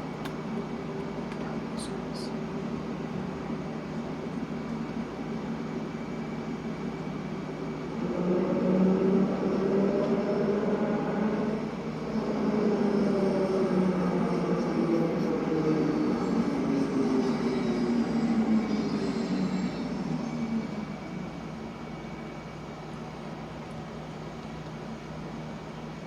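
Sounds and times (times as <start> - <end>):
underground train rumbling: 0.0 - 26.0.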